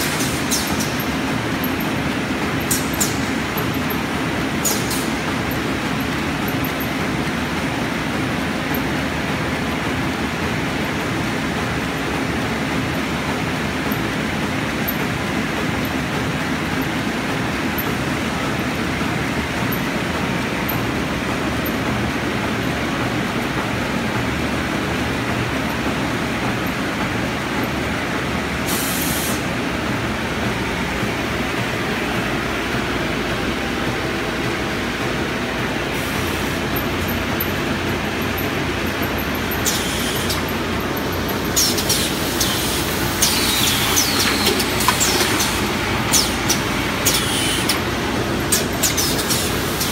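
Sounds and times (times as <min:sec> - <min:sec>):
paper cutting machine running: 0:36.0 - 0:49.9.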